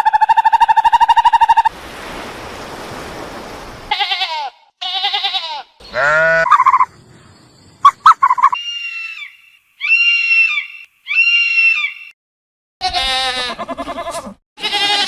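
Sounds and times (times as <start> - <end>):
long high animal calls: 4.0 - 6.9, 7.8 - 12.1
animal yelping: 5.9 - 6.9, 12.8 - 15.0.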